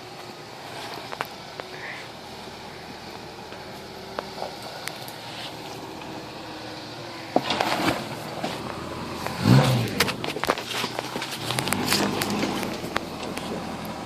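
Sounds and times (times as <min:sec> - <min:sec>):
faint truck engine hum: 0:00.0 - 0:14.0
crunching and clattering on rocks: 0:09.3 - 0:13.6.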